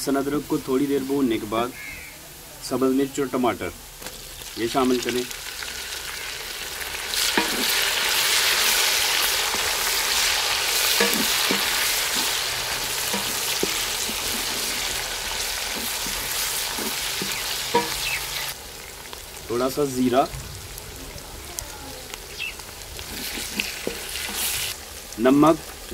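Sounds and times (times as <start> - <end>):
vegetables sizzling in hot oil: 0.0 - 25.9
wooden spatula knocking steel pot: 7.3 - 7.8, 10.9 - 12.4, 13.0 - 14.9, 15.7 - 18.2.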